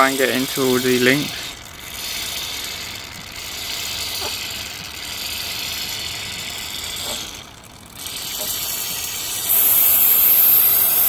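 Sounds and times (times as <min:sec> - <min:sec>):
aerosol can spraying: 0:09.5 - 0:11.0.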